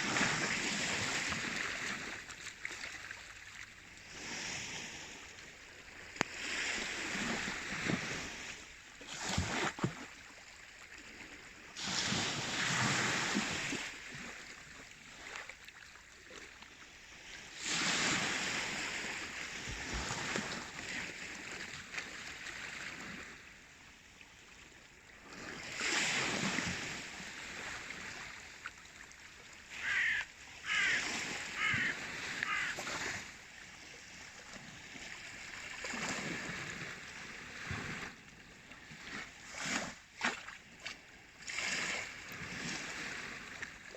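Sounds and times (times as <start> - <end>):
waves washing in: 0.0 - 10.3, 11.0 - 15.6, 17.0 - 43.9.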